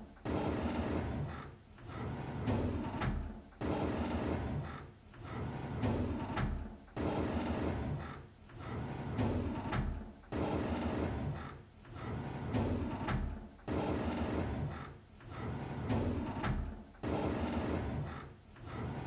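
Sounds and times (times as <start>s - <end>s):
drawer sliding on runners: 0.3s - 8.0s, 8.6s - 19.0s.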